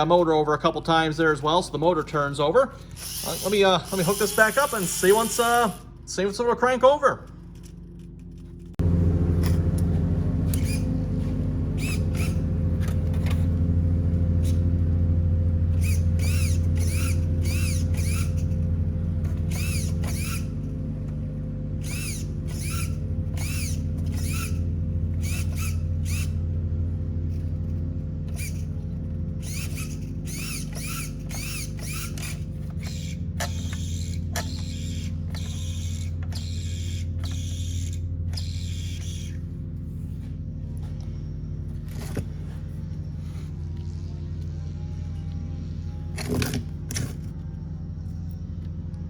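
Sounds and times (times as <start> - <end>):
electric starter whirring: 0.0 - 49.0
short high squeaks: 2.9 - 5.8, 10.5 - 13.4, 15.8 - 18.7, 19.5 - 20.6, 21.8 - 26.4, 29.4 - 39.4.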